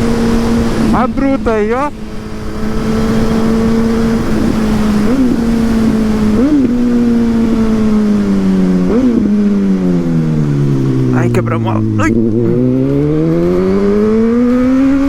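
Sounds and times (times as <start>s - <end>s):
engine throttle blips: 0.8s - 11.2s.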